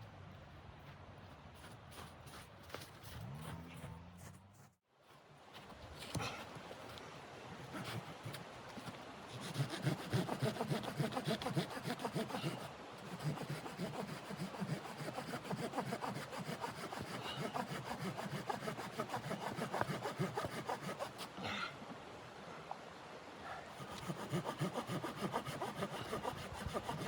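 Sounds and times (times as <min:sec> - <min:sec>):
hand saw cutting wood: 0:09.3 - 0:21.3, 0:23.7 - 0:27.0.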